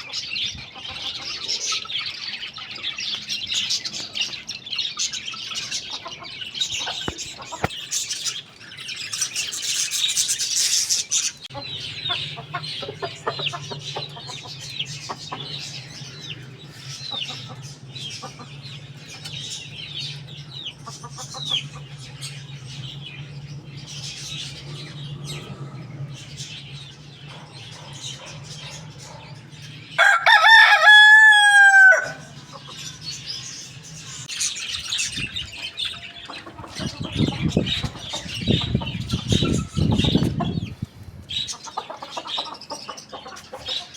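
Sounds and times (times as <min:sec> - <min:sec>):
small birds chirping: 0:00.0 - 0:43.9
rooster crowing: 0:30.0 - 0:32.4.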